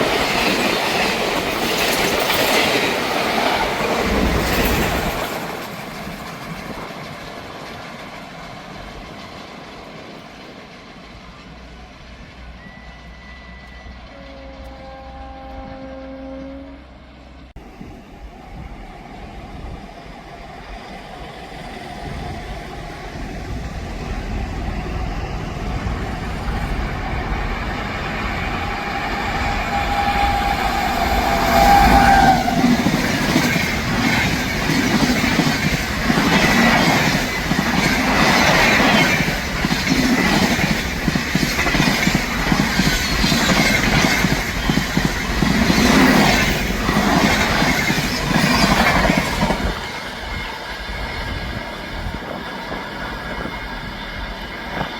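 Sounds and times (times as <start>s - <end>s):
train approaching at speed: 0.0s - 54.9s
long train horn: 12.6s - 17.5s, 28.6s - 33.0s.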